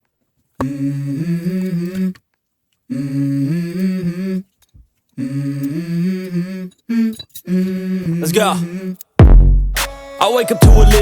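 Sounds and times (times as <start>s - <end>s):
hummed vocal melody: 0.6s - 2.2s, 2.9s - 4.6s, 5.2s - 9.2s, 9.8s - 11.0s.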